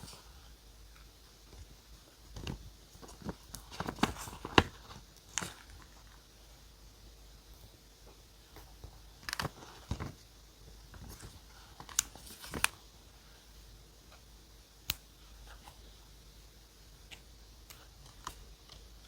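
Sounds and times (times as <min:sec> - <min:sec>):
paper crinkling: 0:02.3 - 0:06.2, 0:08.6 - 0:10.2, 0:10.9 - 0:12.8.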